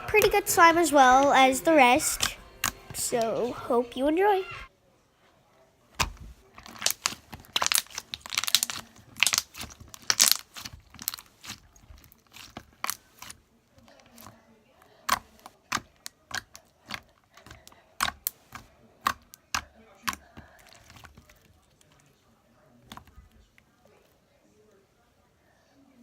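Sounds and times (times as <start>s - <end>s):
slime squished sticky crackles: 6.0s - 14.3s, 15.0s - 22.1s.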